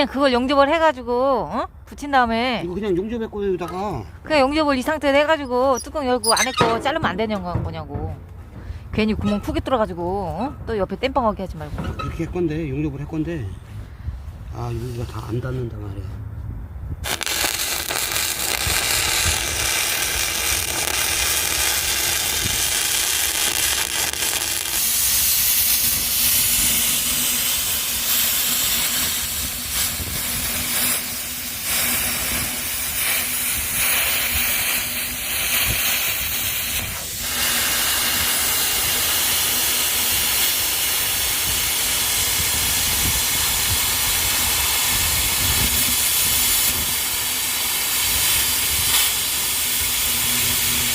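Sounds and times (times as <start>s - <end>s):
arc welding hissing crackle: 17.0s - 50.9s.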